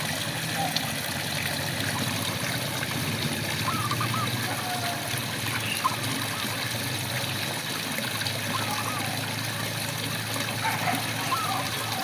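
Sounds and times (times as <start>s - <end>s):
frogs warbling calls: 1.8s - 6.9s, 8.4s - 9.6s, 10.6s - 12.0s.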